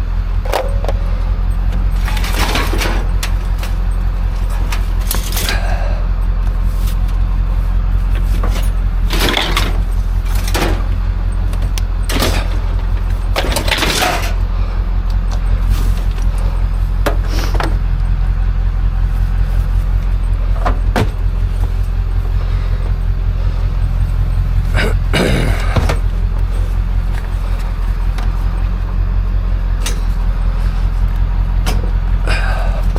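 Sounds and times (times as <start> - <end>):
vehicle engine drone: 0.0 - 32.9
knocks and rattles: 0.4 - 5.8, 8.1 - 14.5, 19.8 - 29.1.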